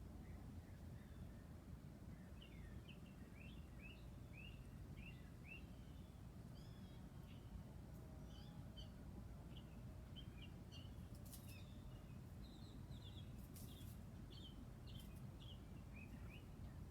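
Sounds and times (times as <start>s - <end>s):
small birds chirping: 9.5s - 16.8s.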